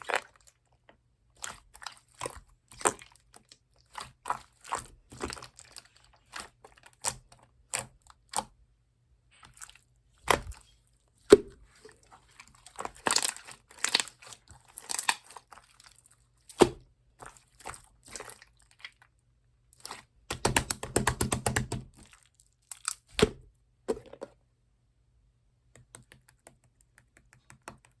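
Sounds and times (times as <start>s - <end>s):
slime squishing with pops: 0.0s - 8.6s, 9.5s - 18.8s, 19.8s - 23.5s.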